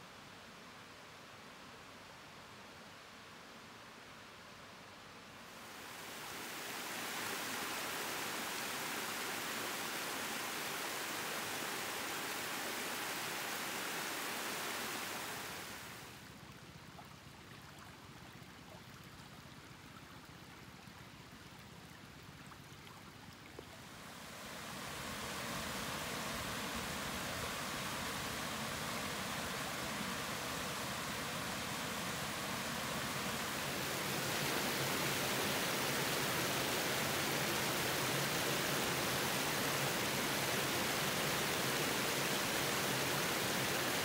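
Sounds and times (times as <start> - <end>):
stream rushing over rocks: 5.6 - 16.3, 23.8 - 44.0.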